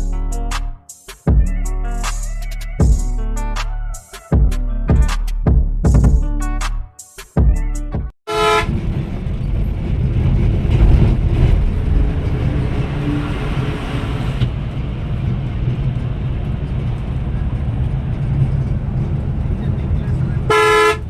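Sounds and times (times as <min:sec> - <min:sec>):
vehicle horn toot: 0:08.3 - 0:08.8, 0:20.4 - 0:21.0
bus engine rumble: 0:08.3 - 0:21.0
road noise: 0:08.3 - 0:21.0.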